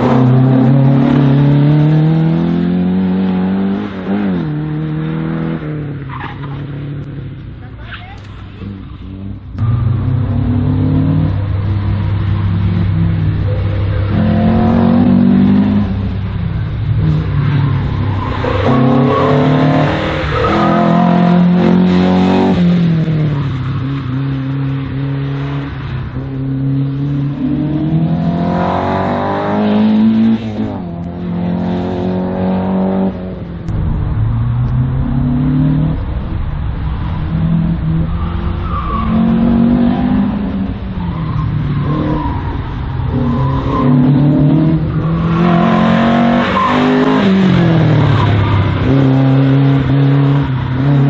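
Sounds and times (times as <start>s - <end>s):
race car engine revving hard: 0.0s - 7.3s, 8.5s - 36.6s, 37.2s - 51.0s.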